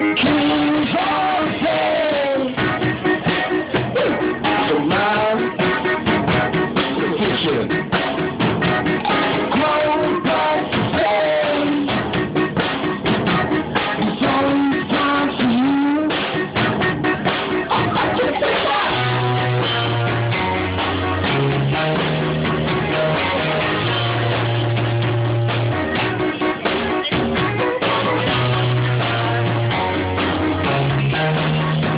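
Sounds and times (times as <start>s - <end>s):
person singing: 0.0s - 8.0s, 9.0s - 12.3s, 13.8s - 16.4s, 17.5s - 20.1s
low bass line: 0.0s - 31.9s
rock music with guitar and drums: 0.0s - 31.9s.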